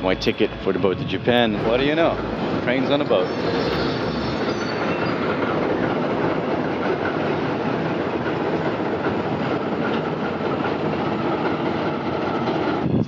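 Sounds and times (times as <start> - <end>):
wagon wheels rumbling on rails: 0.0 - 13.0
faint wheel squeal: 2.7 - 6.0.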